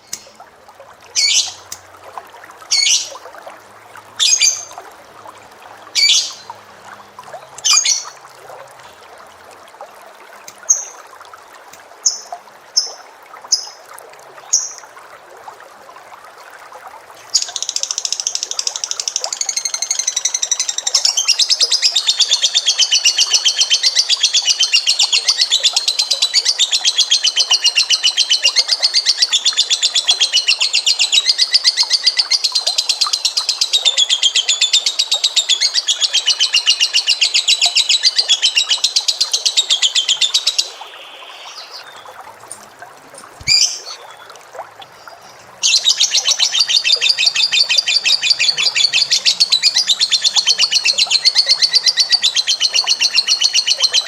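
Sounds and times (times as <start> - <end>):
cage bird trilling: 1.2 - 1.6, 2.7 - 3.2, 6.0 - 6.4, 43.4 - 44.3, 45.6 - 54.0.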